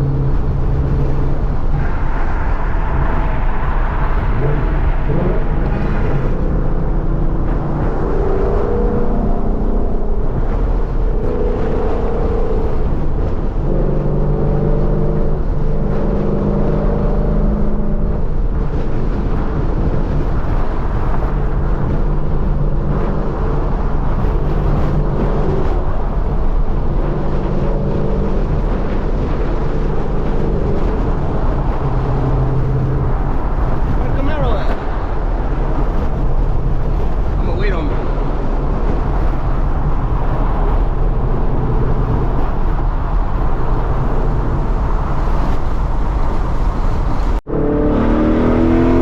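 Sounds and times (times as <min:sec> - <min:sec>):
car exhaust droning: 0:00.0 - 0:37.4
road and wind noise: 0:00.0 - 0:49.0.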